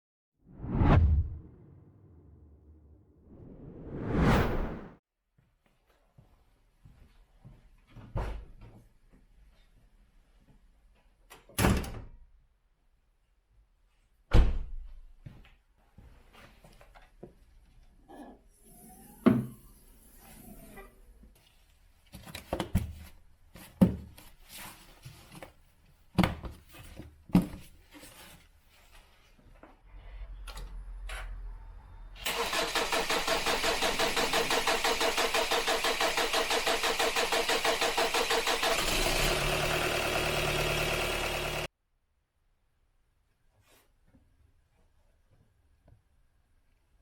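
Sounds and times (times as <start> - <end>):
diesel engine cranking: 32.2 - 41.7.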